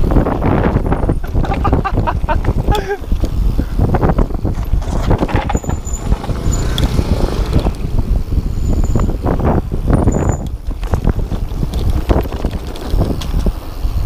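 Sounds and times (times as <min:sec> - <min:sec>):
bike rattling over rough ground: 0:00.0 - 0:14.0
wind buffeting microphone: 0:00.0 - 0:14.0
short high squeaks: 0:04.7 - 0:09.3, 0:09.9 - 0:10.6.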